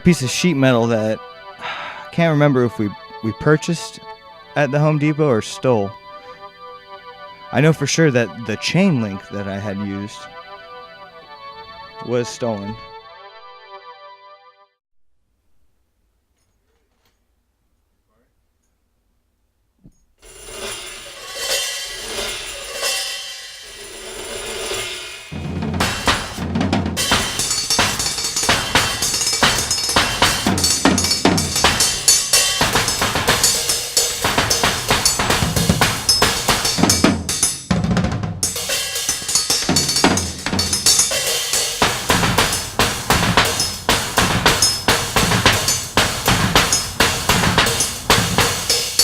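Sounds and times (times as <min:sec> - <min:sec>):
drum kit playing: 0:07.6 - 0:10.5, 0:20.2 - 0:49.0
cymbals and sheet metal ringing: 0:20.2 - 0:37.7, 0:38.4 - 0:49.0
metal hits: 0:20.2 - 0:49.0.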